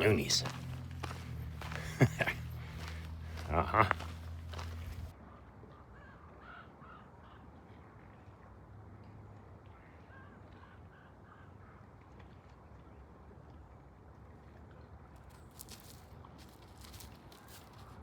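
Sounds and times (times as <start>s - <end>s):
outdoor background noise: 0.0s - 18.0s
crow cawing: 0.4s - 5.0s.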